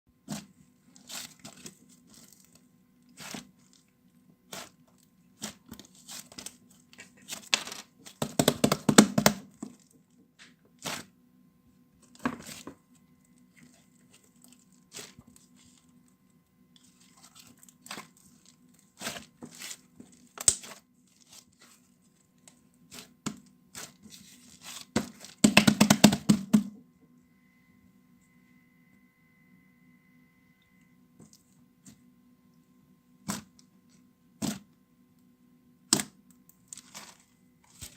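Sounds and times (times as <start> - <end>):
faint low hum: 0.1 - 37.9
crackling handling noises: 0.3 - 8.2, 12.0 - 25.4, 35.9 - 37.9.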